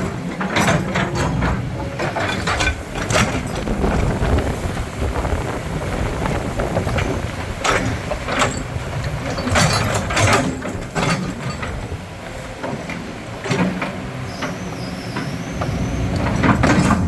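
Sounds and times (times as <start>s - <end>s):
excavator diesel engine rumbling: 0.0s - 17.0s
metallic clanks and knocks: 7.6s - 12.0s.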